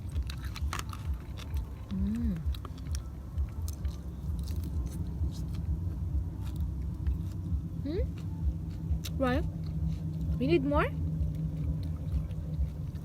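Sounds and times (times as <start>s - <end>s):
person chewing food: 0.0s - 10.4s, 11.0s - 13.0s
steady low rumble: 0.0s - 13.0s
person humming mm: 1.9s - 2.5s.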